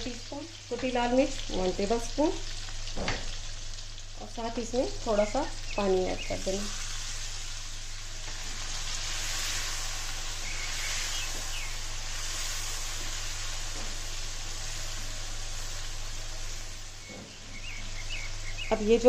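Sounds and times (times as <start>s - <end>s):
tomatoes sizzling in oil: 0.0s - 19.0s.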